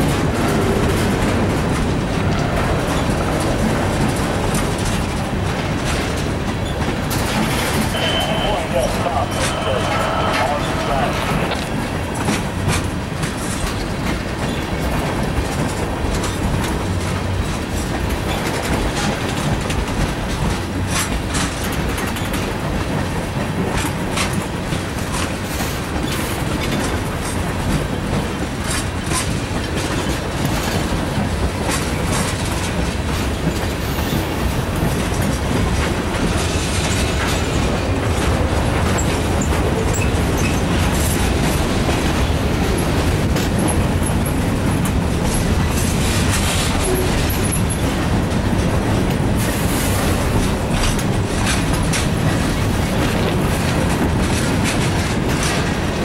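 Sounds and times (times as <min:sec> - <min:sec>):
freight train rumbling past: 0:00.0 - 0:56.0
wheels clicking over rail joints: 0:12.1 - 0:56.0.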